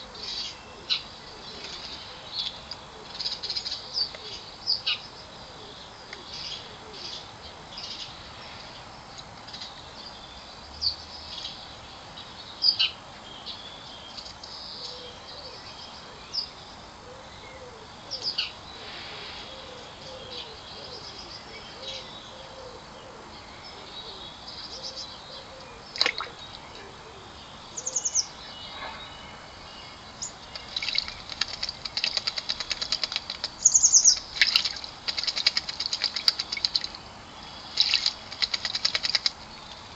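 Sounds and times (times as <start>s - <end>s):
birds chirping and calling: 12.6s - 39.9s
loud rattling bird chatter: 30.2s - 39.9s.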